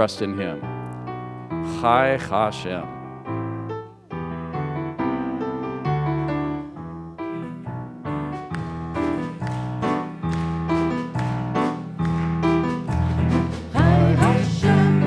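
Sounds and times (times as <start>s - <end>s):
keyboard piano chords: 0.0s - 15.0s.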